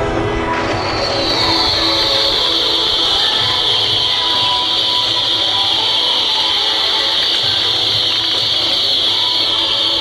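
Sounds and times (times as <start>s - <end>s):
faint music: 0.0s - 10.0s
fountain fireworks hissing: 0.8s - 10.0s.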